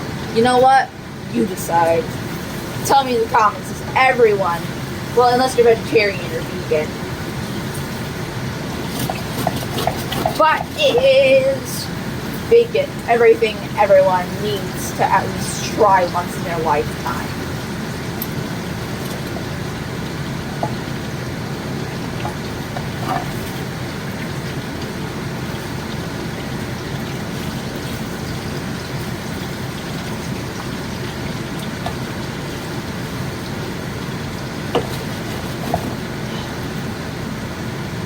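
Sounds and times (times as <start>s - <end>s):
bacon sizzling in a frying pan: 1.1s - 37.6s
grease popping: 7.0s - 36.9s.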